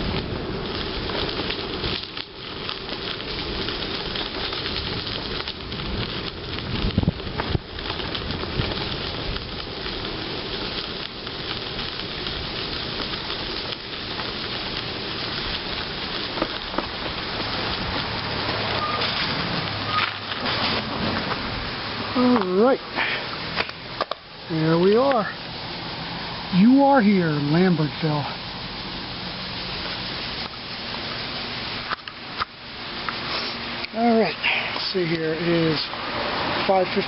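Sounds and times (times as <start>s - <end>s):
bicycle rolling on gravel: 0.0s - 37.0s
wind on microphone: 4.6s - 9.9s.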